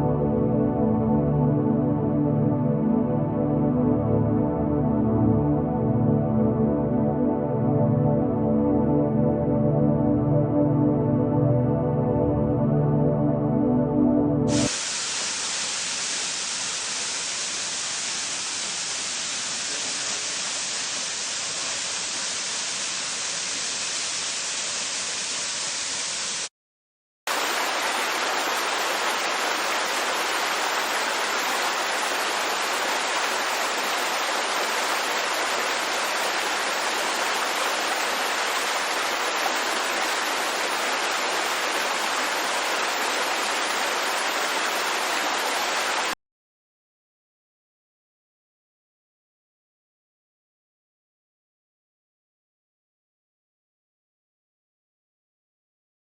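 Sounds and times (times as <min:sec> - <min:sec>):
rush of falling water: 0:14.5 - 0:26.5, 0:27.3 - 0:46.2.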